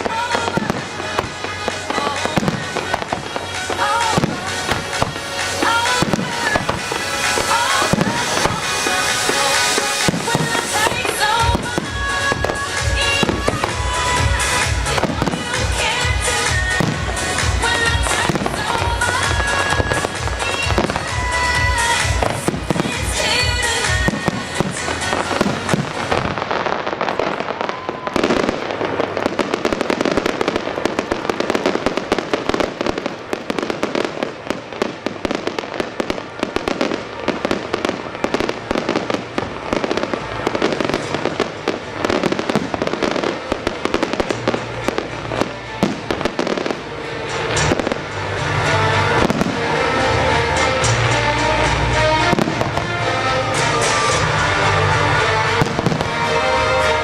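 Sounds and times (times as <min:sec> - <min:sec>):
fireworks bangs and crackles: 0:00.0 - 0:57.0
music soundtrack: 0:00.0 - 0:57.0.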